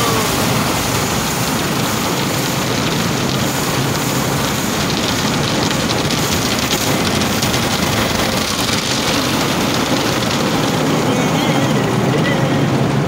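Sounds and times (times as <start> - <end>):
water pattering on car body: 0.0 - 12.5
car wash water spray rushing: 0.0 - 13.0.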